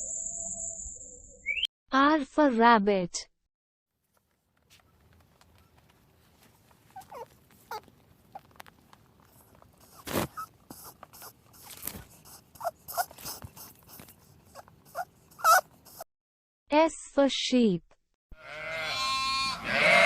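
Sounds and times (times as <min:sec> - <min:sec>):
rabbit squeaking: 0:06.9 - 0:08.6, 0:09.2 - 0:16.1.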